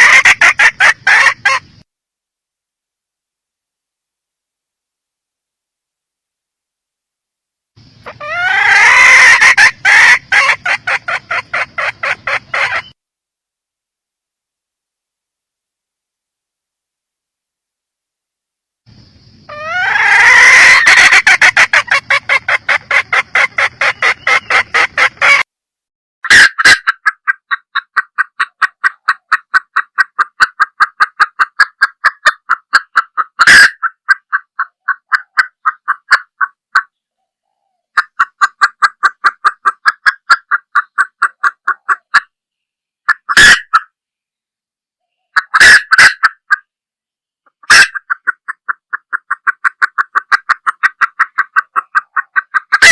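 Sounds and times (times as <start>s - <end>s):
hen clucking rapidly: 0.0s - 1.8s, 7.8s - 13.0s, 19.3s - 25.5s, 26.2s - 37.0s, 37.9s - 42.3s, 43.0s - 43.9s, 45.3s - 46.7s, 47.5s - 52.9s.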